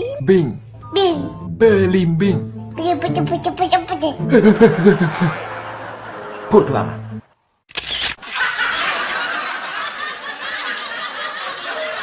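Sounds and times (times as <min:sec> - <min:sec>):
laughter: 0:04.3 - 0:06.5, 0:08.2 - 0:12.0.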